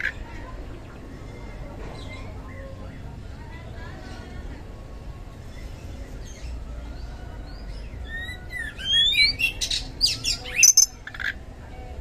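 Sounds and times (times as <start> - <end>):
bird singing whistles and chirps: 8.0 - 11.0.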